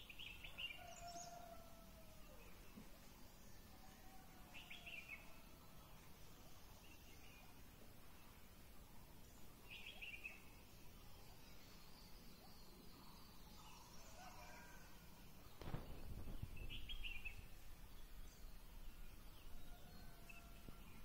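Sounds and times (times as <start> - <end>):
low rumble on microphone: 15.4 - 19.7.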